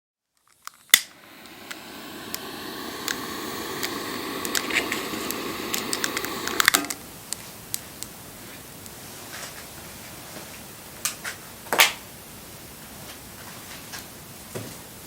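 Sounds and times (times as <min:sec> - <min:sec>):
hiss: 0:00.9 - 0:07.2.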